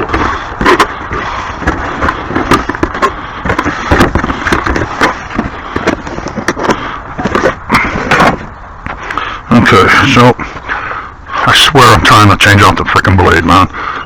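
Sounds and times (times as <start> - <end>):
hard objects knocking and scraping: 0.0 - 9.2.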